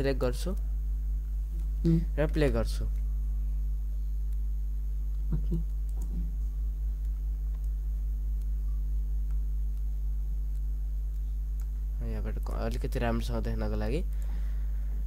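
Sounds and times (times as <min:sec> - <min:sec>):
low electrical hum: 0:00.0 - 0:15.0
mouth sound: 0:01.9 - 0:02.2, 0:05.3 - 0:06.3.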